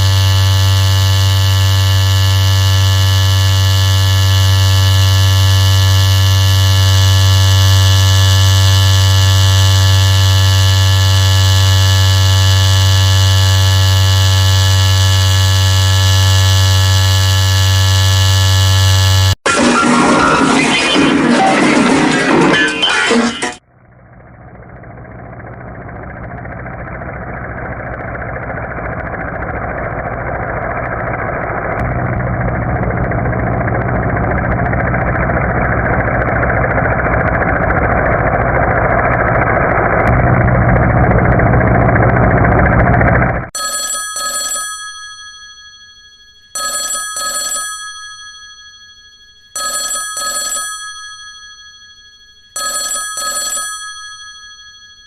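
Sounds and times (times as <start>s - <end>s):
engine running: 0.0s - 43.6s
telephone ringing: 43.5s - 55.0s.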